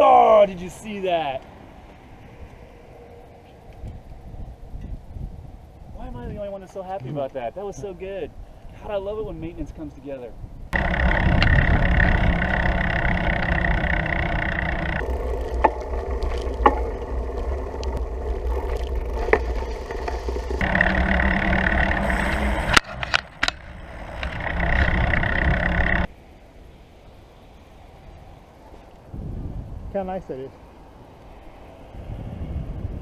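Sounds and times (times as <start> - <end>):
wind and road rush from bicycle: 0.0 - 33.0
sharp clicks: 10.8 - 26.1.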